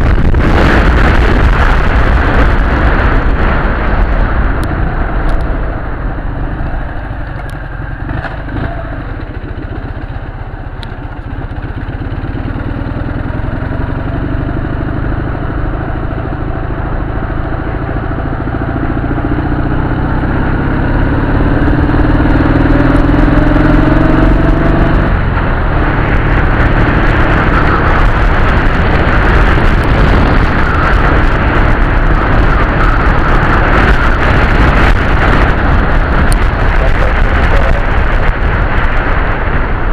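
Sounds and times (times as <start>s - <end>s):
motorcycle engine accelerating: 0.0s - 39.9s
rushing noise: 0.0s - 39.9s.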